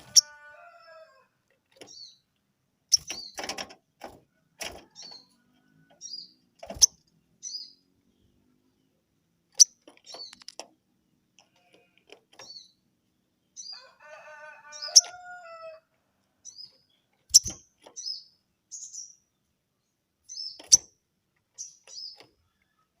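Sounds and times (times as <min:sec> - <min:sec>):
held many-toned bird call: 0:00.0 - 0:02.3, 0:13.5 - 0:15.8
bird chirping: 0:00.0 - 0:03.6, 0:04.8 - 0:10.6, 0:12.4 - 0:14.0, 0:14.7 - 0:15.4, 0:16.3 - 0:23.0.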